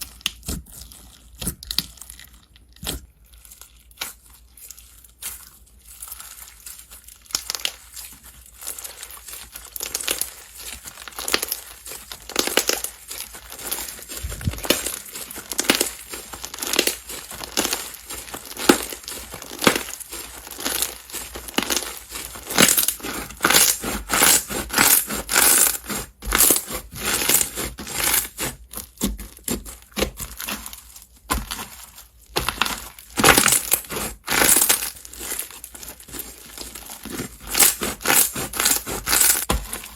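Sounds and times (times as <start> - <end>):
slime squishing and popping: 0.0 - 25.7.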